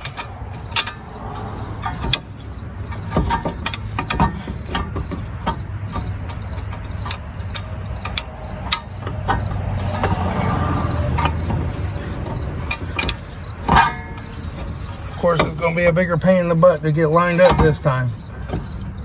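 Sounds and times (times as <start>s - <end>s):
low rumble: 0.0s - 3.8s
metal clinks and knocks: 0.0s - 19.0s.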